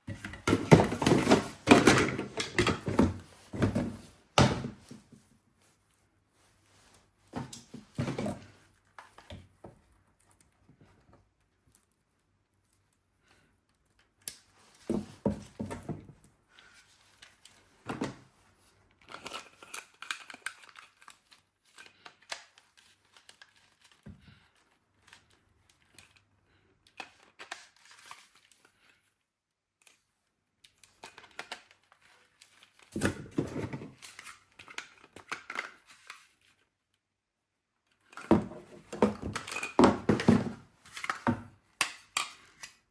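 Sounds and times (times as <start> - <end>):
packaging rustling and tearing: 19.0 - 26.2, 26.9 - 29.0.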